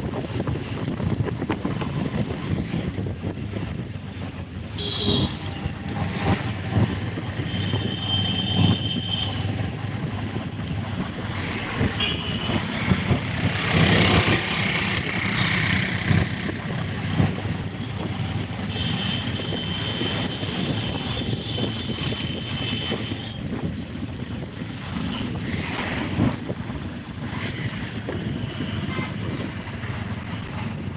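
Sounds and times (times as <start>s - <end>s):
wind buffeting microphone: 0.0s - 30.9s.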